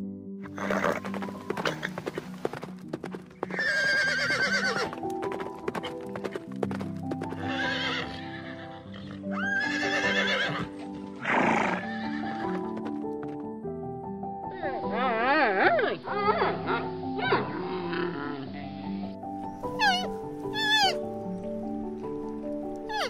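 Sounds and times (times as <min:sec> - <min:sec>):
background music: 0:00.0 - 0:23.0
horses whinnying: 0:00.4 - 0:02.4, 0:03.4 - 0:05.0, 0:07.3 - 0:12.8, 0:19.8 - 0:21.0
hooves clip-clopping: 0:00.5 - 0:08.3, 0:09.9 - 0:13.6.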